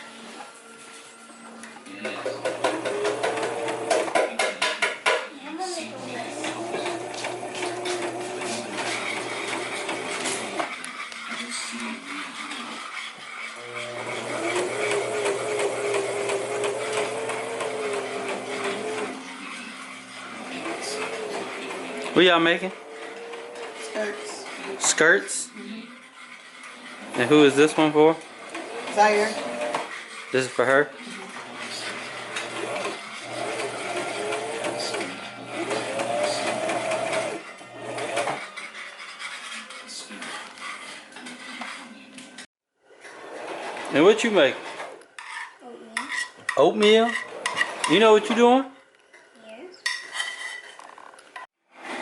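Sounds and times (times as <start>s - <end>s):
sewing machine stitching: 2.3s - 4.2s, 6.0s - 11.4s, 12.3s - 24.9s, 26.1s - 39.3s.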